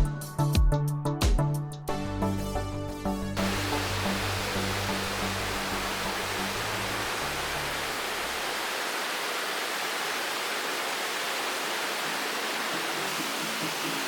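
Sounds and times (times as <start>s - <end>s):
low background music: 0.0s - 7.9s
river water rushing: 3.4s - 14.0s.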